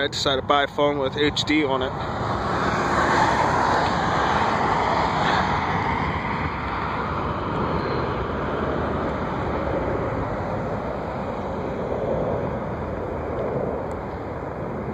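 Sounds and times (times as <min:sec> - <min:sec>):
jet plane passing: 0:00.0 - 0:14.9.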